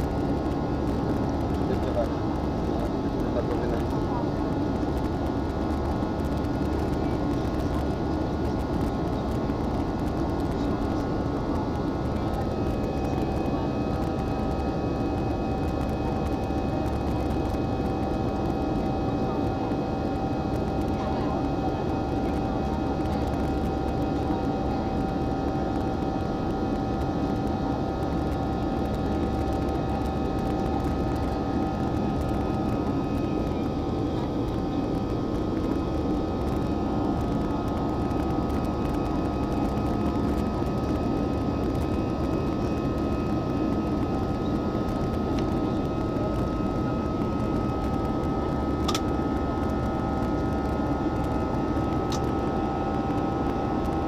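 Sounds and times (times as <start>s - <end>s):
jet cabin engine rumble: 0.0s - 54.0s
steady whining tones: 0.0s - 54.0s.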